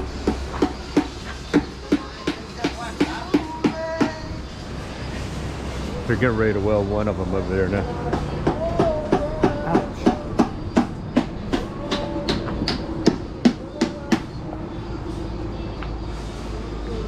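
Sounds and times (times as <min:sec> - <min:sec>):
rapid hammer strikes: 0:00.0 - 0:04.3, 0:08.0 - 0:14.4.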